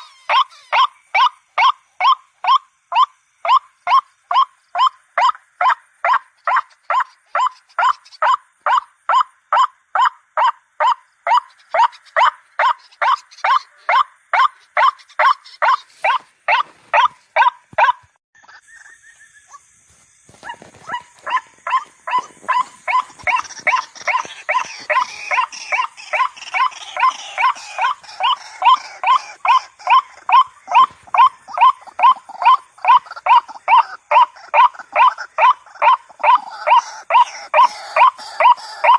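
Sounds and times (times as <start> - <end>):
waterhen calling harsh notes: 20.9 - 38.9.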